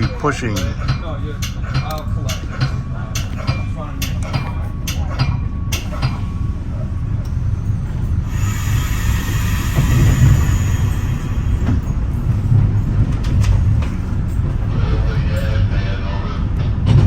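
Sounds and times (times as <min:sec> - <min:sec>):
train rumbling on track: 0:00.0 - 0:17.0
air hiss: 0:08.3 - 0:12.4.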